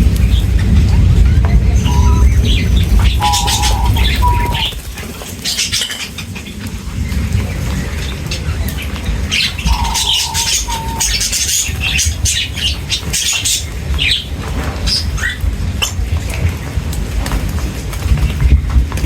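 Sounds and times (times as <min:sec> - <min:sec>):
low rumble: 0:00.0 - 0:05.5
birds chirping and squawking: 0:00.0 - 0:18.8.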